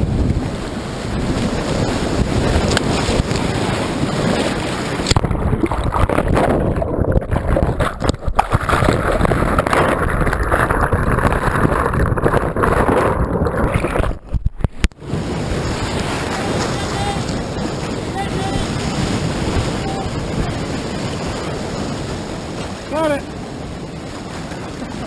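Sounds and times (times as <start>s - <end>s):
wind buffeting microphone: 0.0s - 25.0s
rushing whitewater: 15.0s - 25.0s.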